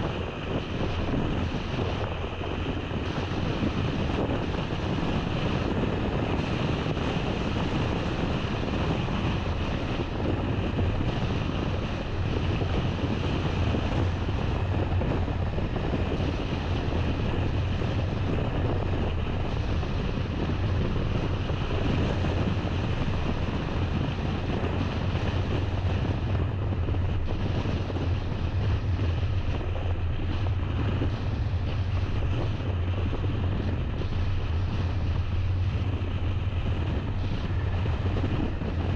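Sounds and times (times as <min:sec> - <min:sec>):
wind noise: 0:00.0 - 0:38.9.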